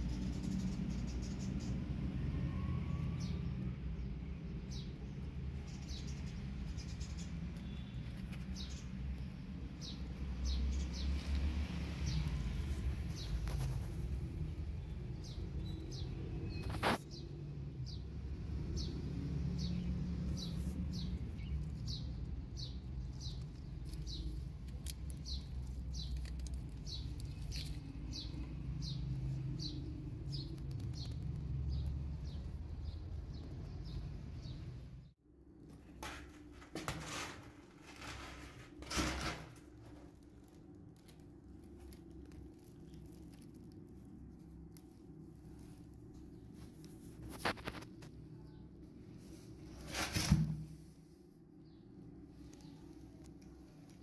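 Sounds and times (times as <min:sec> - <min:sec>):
small bird chirping: 0:05.6 - 0:11.4.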